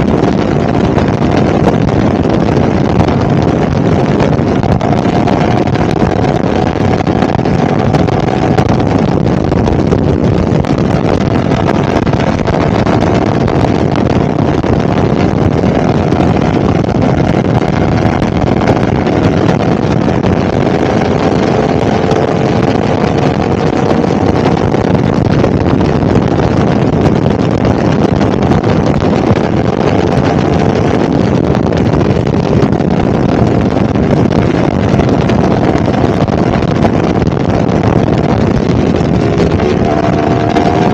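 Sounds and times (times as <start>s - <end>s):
motorcycle engine: 0.0s - 40.9s
wind rushing on microphone: 0.0s - 40.9s.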